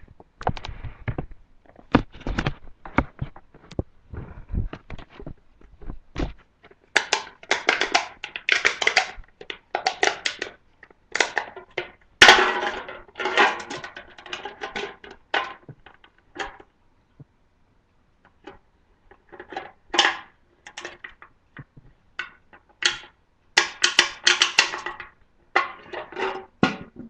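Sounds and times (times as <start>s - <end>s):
soda can crinkling: 6.7s - 16.7s, 18.4s - 21.3s, 22.2s - 26.8s.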